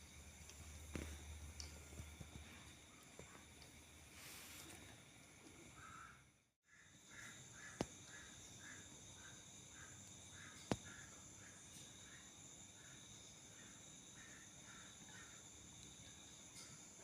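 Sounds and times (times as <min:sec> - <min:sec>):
soft repeating insect call: 0:00.0 - 0:17.0
steady high insect buzz: 0:00.0 - 0:17.0.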